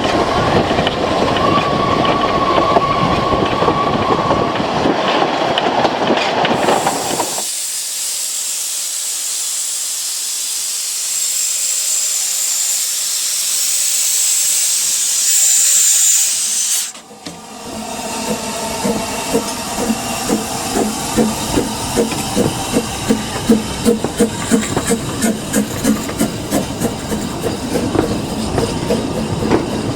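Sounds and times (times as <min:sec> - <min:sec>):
rhythmic train running noise: 0:00.0 - 0:29.9
steam locomotive hissing: 0:06.0 - 0:29.9.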